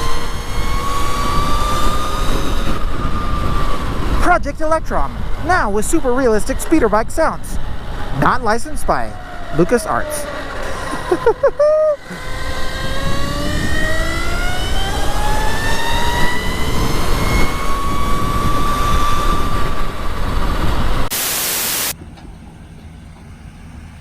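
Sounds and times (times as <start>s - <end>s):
electric motorcycle motor whining: 0.0s - 24.0s
heavy rushing noise: 12.1s - 24.0s
flat hiss: 21.1s - 22.0s.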